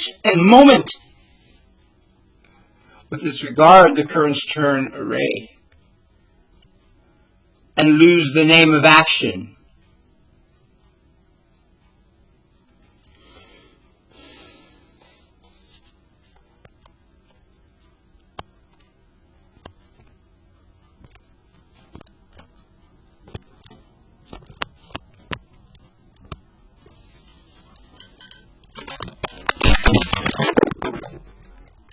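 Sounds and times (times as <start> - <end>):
small handling clicks and taps: 23.2 - 26.5
loud rustling and knocking: 27.8 - 31.7.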